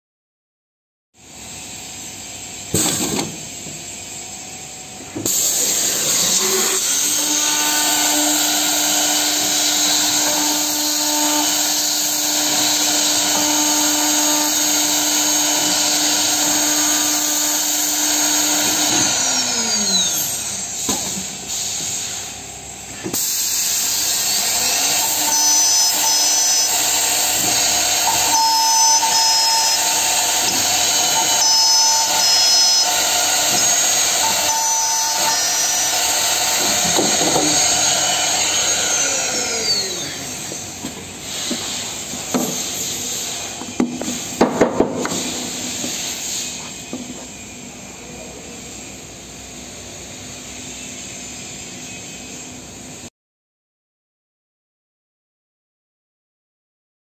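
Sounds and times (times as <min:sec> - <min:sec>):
drill heads whining: 0:04.6 - 0:22.4, 0:23.0 - 0:44.4
machine hiss: 0:20.6 - 0:37.0
machine humming: 0:23.8 - 0:40.8
spindles winding down: 0:24.2 - 0:40.4.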